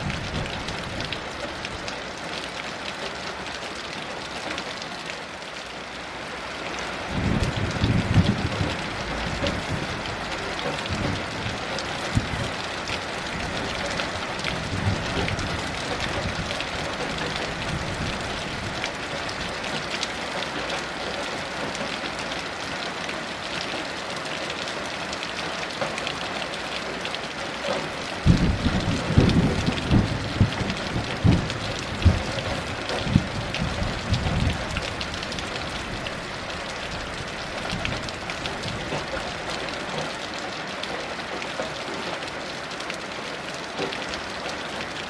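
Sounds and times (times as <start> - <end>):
heavy rain hissing: 0.0 - 45.0
thunder rumbling: 7.1 - 12.6, 14.4 - 19.5, 28.2 - 36.2.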